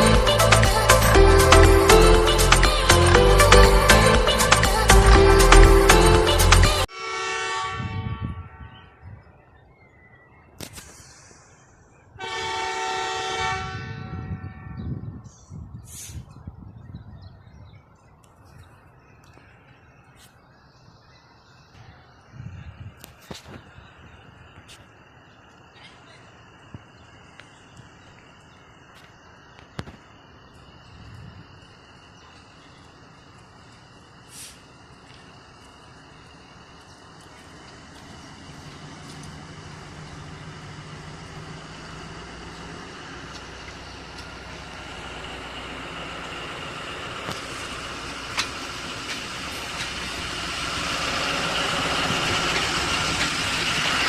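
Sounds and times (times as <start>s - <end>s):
locomotive air horn blasts: 6.9s - 9.1s, 12.2s - 15.0s.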